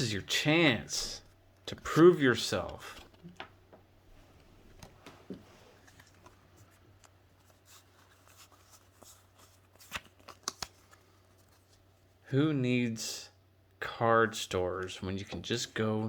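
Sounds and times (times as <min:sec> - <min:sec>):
trading cards rustling and tapping: 0:04.8 - 0:11.7.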